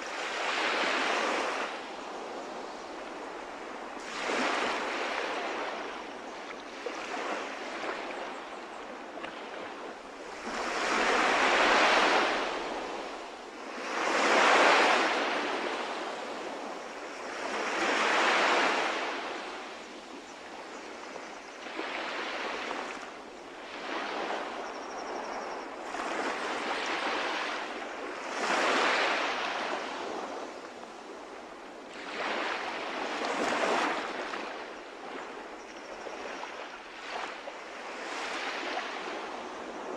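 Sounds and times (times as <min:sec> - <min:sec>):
sea waves breaking: 0:25.3 - 0:39.4.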